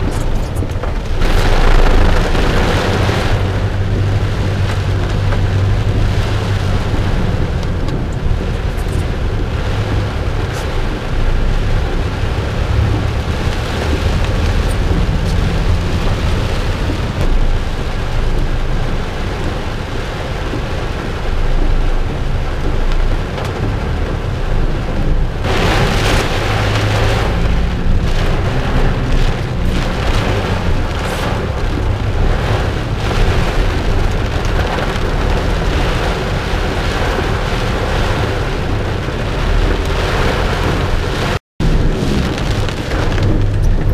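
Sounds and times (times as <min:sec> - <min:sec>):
deep thunder rumble: 0:00.0 - 0:43.9
heavy rain hiss: 0:24.7 - 0:43.9.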